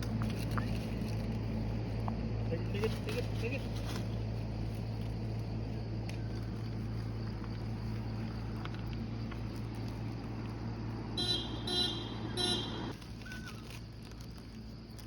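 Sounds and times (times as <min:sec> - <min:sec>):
traffic hum: 0:00.0 - 0:15.0
vehicle horn honking: 0:11.2 - 0:12.9.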